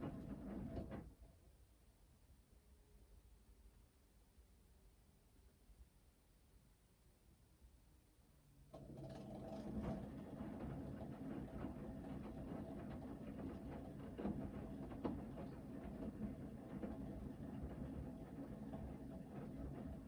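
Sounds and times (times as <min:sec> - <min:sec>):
laundry churning in drum: 0:08.8 - 0:20.0.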